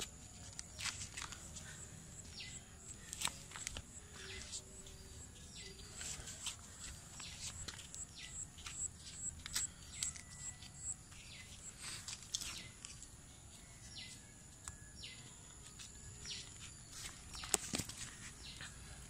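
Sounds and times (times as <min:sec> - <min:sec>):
birds chirping: 0:00.6 - 0:12.9.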